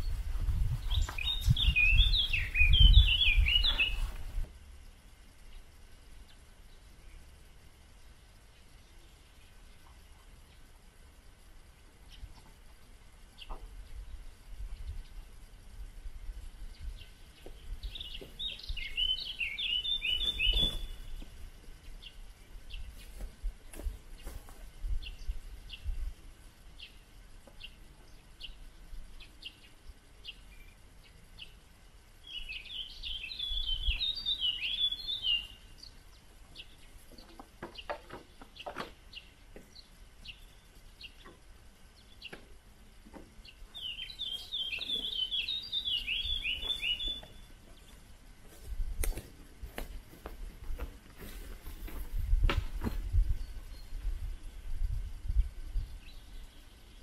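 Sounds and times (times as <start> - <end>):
songbird singing falling notes: 0.0 - 4.4, 16.7 - 21.4, 32.2 - 41.4, 43.2 - 48.0
short bird chirps: 0.8 - 4.2, 18.0 - 21.2, 43.8 - 47.5.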